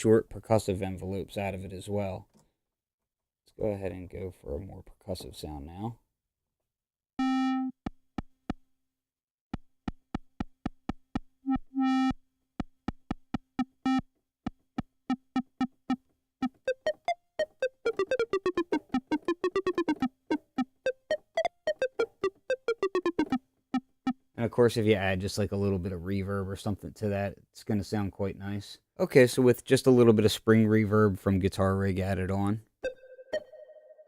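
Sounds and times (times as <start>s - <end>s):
synth plucked blips: 7.2s - 7.9s, 11.4s - 12.2s, 13.6s - 14.1s, 15.1s - 24.2s, 32.8s - 34.0s.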